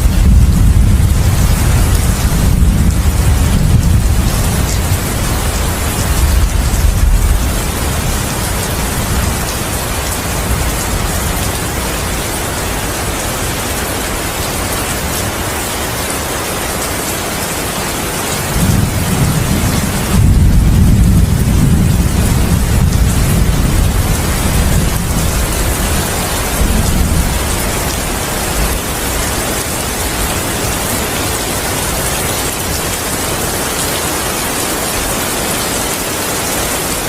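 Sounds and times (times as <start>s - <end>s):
thunder rumbling: 0.0s - 13.8s, 18.4s - 30.9s
heavy rain falling: 0.0s - 37.0s.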